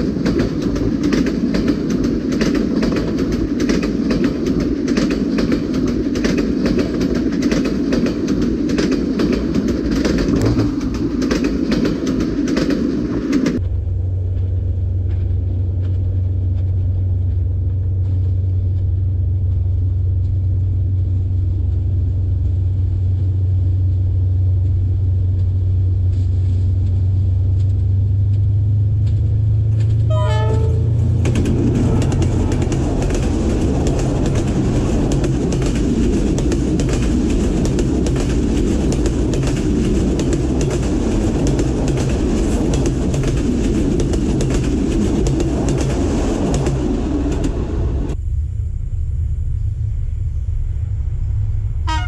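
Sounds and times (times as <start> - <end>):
train wheels on rails: 0.0 - 48.2
train engine drone: 0.0 - 52.0
train horn blast: 30.0 - 32.4, 51.8 - 52.0.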